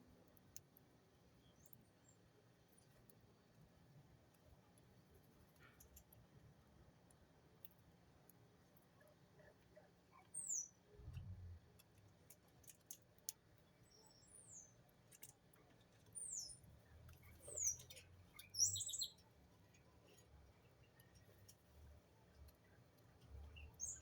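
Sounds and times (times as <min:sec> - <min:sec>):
birds chirping: 0:17.4 - 0:19.2.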